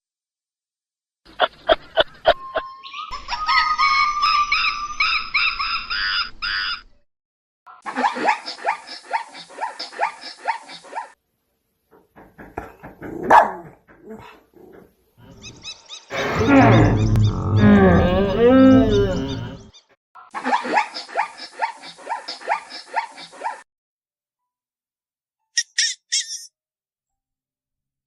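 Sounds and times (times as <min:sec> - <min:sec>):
loud deep animal call: 0:12.6 - 0:19.7
rapid high animal calls: 0:15.2 - 0:19.6
quick yelping calls: 0:25.6 - 0:26.5.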